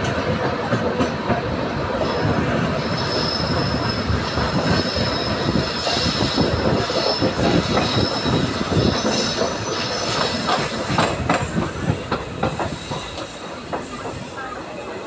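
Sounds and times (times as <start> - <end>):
train wheels rumbling and rattling: 0.0 - 15.0
steel wheel squeal: 2.0 - 11.0, 12.5 - 14.5.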